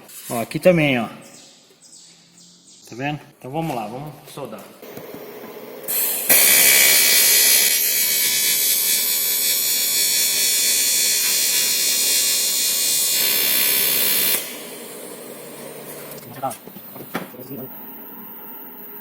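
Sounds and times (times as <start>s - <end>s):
welding arc buzzing: 4.8s - 16.2s.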